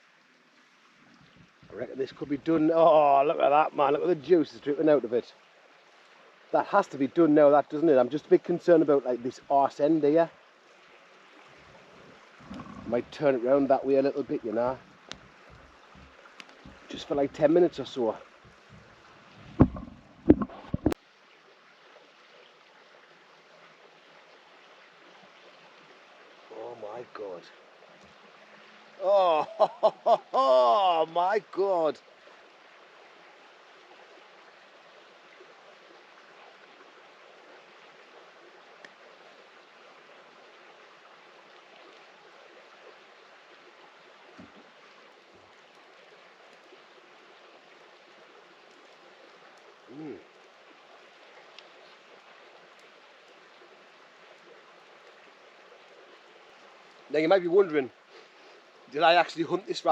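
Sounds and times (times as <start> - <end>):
campfire hissing: 0.0 - 59.9
soft low thumps: 15.0 - 17.5, 18.4 - 21.0
sharp knocks: 19.4 - 21.0.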